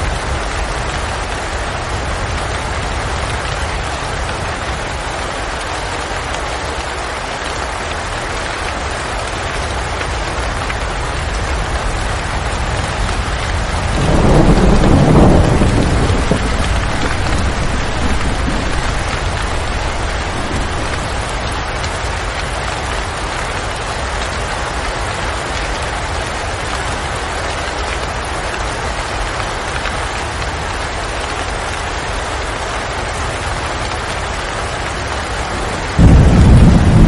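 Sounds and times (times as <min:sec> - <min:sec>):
steady rain falling: 0:00.0 - 0:37.0
thunder rolling: 0:12.6 - 0:21.8, 0:35.8 - 0:37.0.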